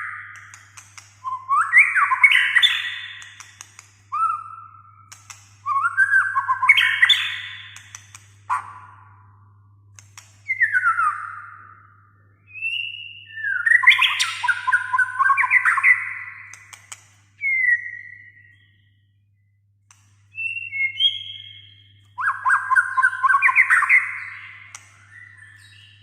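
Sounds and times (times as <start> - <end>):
sharp bird clicks: 0.0 - 4.4, 5.1 - 8.9, 9.9 - 11.2, 13.8 - 18.7, 22.6 - 25.8
bird singing whistled phrases: 1.2 - 3.5, 4.1 - 9.1, 10.4 - 16.7, 17.4 - 19.1, 20.3 - 26.0.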